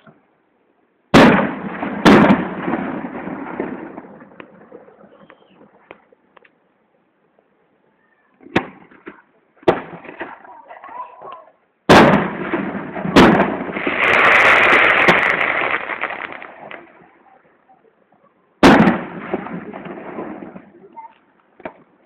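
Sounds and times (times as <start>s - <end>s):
fireworks bursting with bangs: 1.1s - 6.2s, 8.4s - 10.5s, 11.9s - 17.4s, 18.6s - 22.0s
fireworks crackle: 1.1s - 6.5s, 11.9s - 17.4s, 18.6s - 22.0s.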